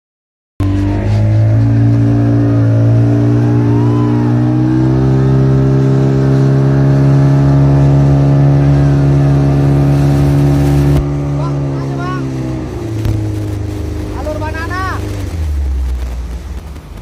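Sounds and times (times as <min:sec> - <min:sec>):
motorboat engine running: 0:00.6 - 0:17.0.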